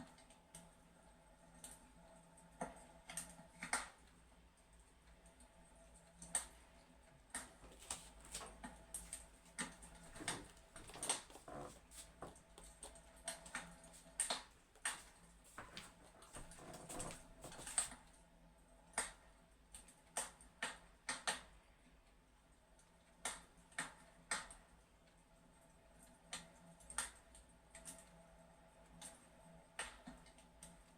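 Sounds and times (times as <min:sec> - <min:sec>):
fireplace crackling: 0:07.3 - 0:18.2.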